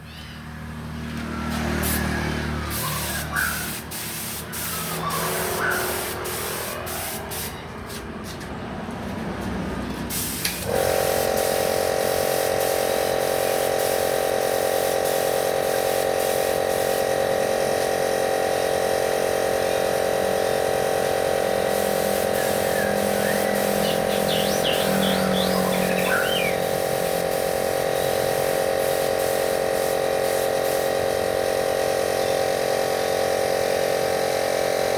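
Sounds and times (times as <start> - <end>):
air compressor humming: 1.1 - 7.6, 10.1 - 34.9
bird chirps: 22.4 - 26.7.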